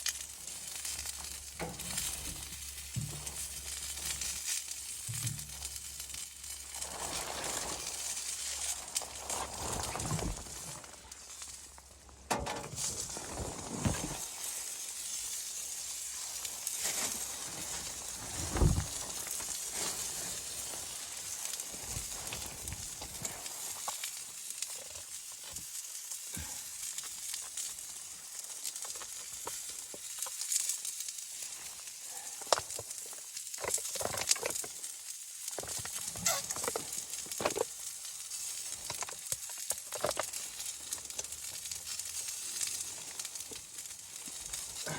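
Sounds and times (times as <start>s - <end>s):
food sizzling in a pan: 14.2s - 18.4s, 19.2s - 44.9s.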